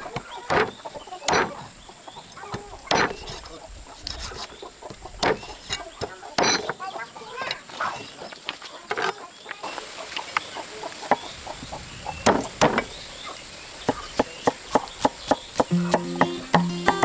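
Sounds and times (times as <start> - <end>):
chickens clucking: 13.9 - 17.0.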